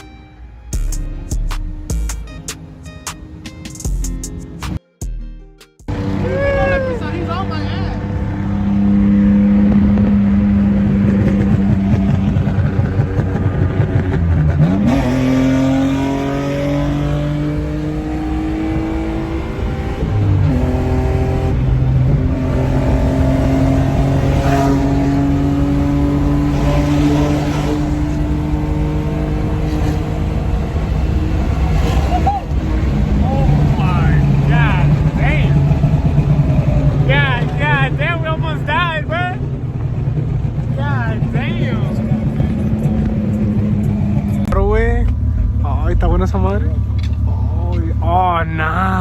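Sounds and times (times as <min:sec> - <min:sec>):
car engine running: 0:00.7 - 0:04.8, 0:05.9 - 0:49.0.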